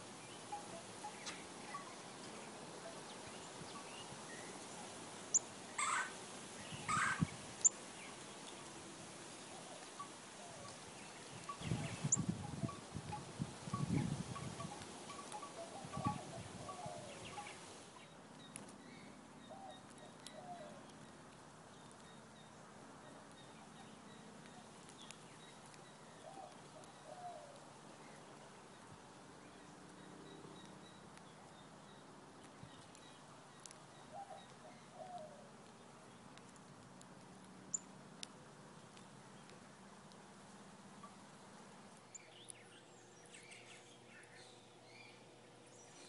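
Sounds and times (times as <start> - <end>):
bird wavering call: 11.4 - 17.7
faint clicks: 32.4 - 33.8, 34.4 - 42.6.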